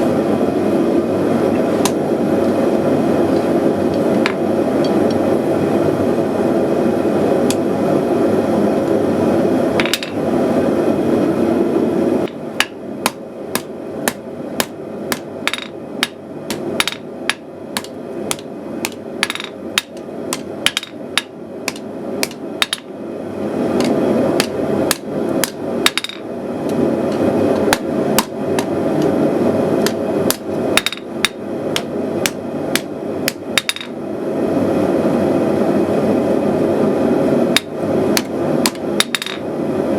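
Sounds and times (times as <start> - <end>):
gas forge burner roar: 0.0 - 39.9
hammer striking steel on anvil: 12.3 - 22.9, 23.8 - 26.2, 29.8 - 34.0, 37.6 - 39.4.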